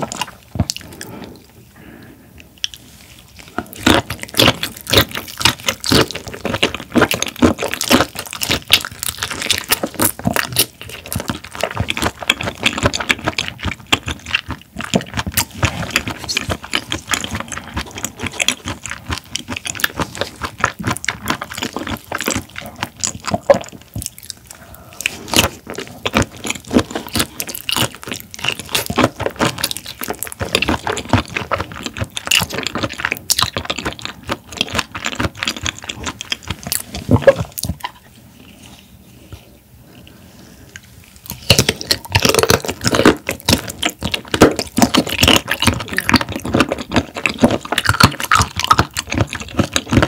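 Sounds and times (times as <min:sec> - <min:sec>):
chewing with mouth clicks: 0:00.0 - 0:50.0.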